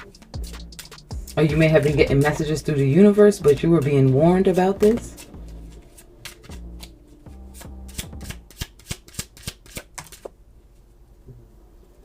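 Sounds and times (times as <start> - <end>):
cards being shuffled: 0.0 - 2.4, 3.6 - 10.4.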